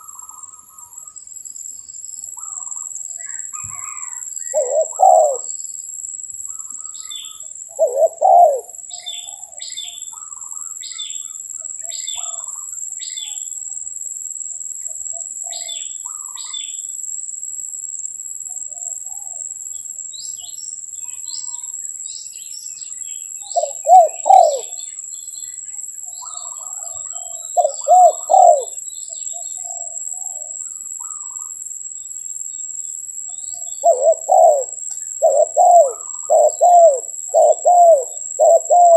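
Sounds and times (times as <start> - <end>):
small bird chirping: 0.0 - 17.0, 18.5 - 38.9
doves cooing: 2.4 - 5.5, 7.8 - 8.8, 23.6 - 24.8, 26.2 - 28.8, 33.8 - 38.9.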